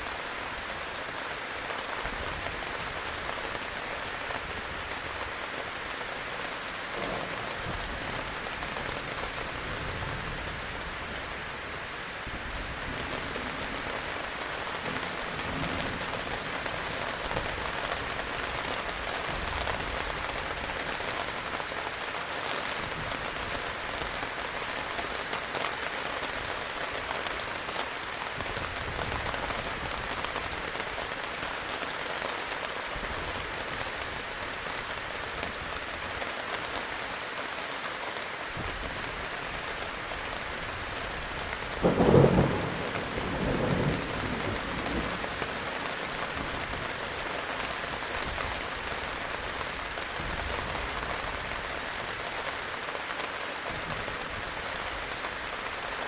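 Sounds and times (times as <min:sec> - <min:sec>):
heavy rain hissing: 0:00.0 - 0:56.0
loud thunder clap: 0:06.9 - 0:09.1, 0:41.8 - 0:45.3.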